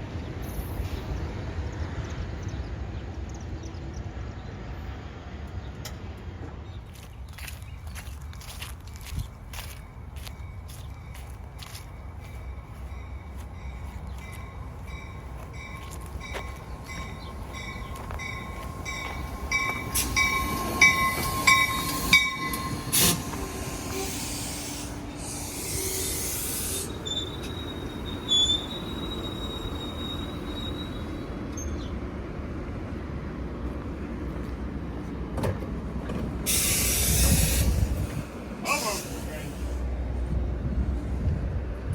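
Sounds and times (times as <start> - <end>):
train wheels squealing: 12.5 - 31.9, 36.5 - 39.2
hissing bursts: 21.8 - 27.4, 36.5 - 39.9.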